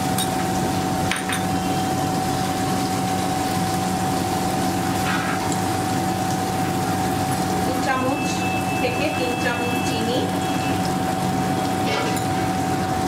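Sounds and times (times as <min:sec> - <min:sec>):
onion frying in oil: 0:00.0 - 0:13.0.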